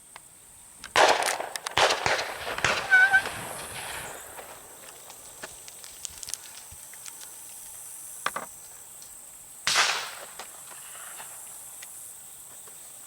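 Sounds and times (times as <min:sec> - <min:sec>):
faint distant shotgun shot: 0:00.9 - 0:04.8, 0:09.7 - 0:10.4.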